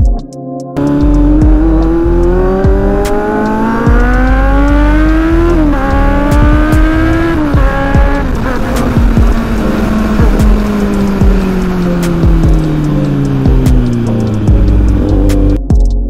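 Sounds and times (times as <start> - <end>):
electronic music: 0.0 - 16.0
motorcycle engine accelerating: 0.8 - 15.6
wind rush on microphone: 6.0 - 12.8.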